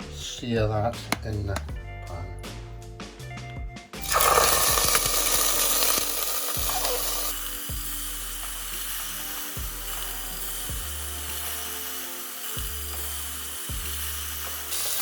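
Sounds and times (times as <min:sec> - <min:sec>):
chicken sizzling in hot oil: 0:04.0 - 0:15.0.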